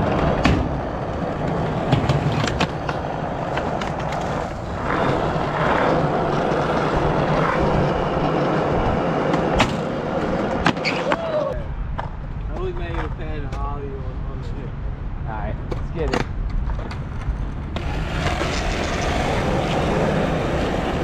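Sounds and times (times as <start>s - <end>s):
skateboard clacks: 0.0s - 11.4s
skateboard wheels rolling: 0.0s - 13.6s, 15.7s - 21.0s.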